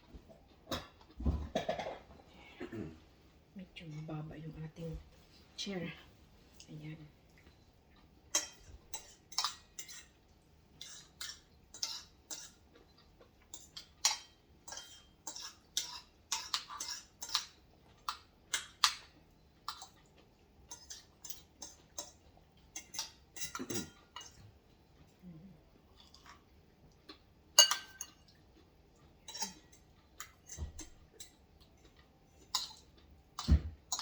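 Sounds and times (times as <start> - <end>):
cutlery clinking against dishes: 8.3 - 10.2, 10.8 - 12.6, 13.5 - 19.1, 20.6 - 24.4, 27.6 - 28.4, 29.2 - 31.4, 33.4 - 34.0.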